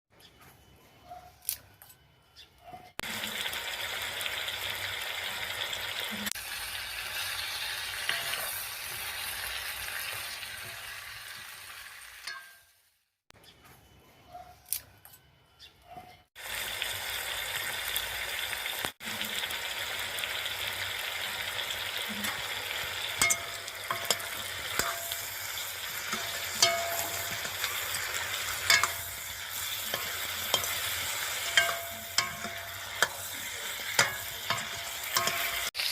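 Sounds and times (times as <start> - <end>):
chicken sizzling in hot oil: 3.0 - 13.0, 16.4 - 35.9
spoon scraping a pot: 8.0 - 8.6, 22.1 - 35.8.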